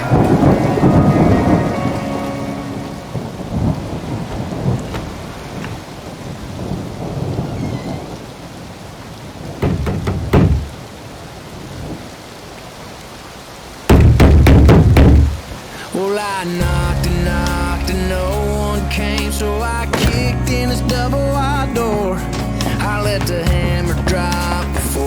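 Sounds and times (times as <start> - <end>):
rolling thunder: 0.0 - 8.7
steady rain: 0.0 - 25.0
loud low thuds: 9.6 - 10.8, 13.9 - 15.4, 19.9 - 21.1.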